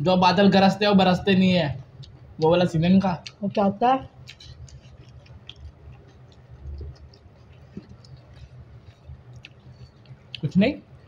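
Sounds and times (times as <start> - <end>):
soft chewing: 1.8 - 11.0
small mouth clicks: 4.2 - 10.5.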